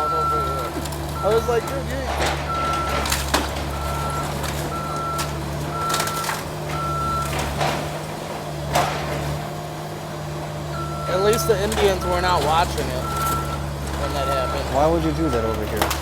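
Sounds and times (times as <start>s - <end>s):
backup alarm beeping: 0.0s - 7.6s, 10.7s - 15.9s
demolition debris cracking: 0.0s - 16.0s
diesel engine hum: 0.0s - 16.0s.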